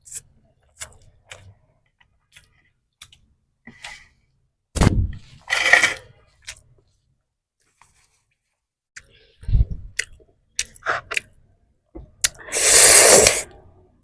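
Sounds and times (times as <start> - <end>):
mouth clicks and smacks: 9.0 - 11.4
biting or breath burst: 12.2 - 13.5.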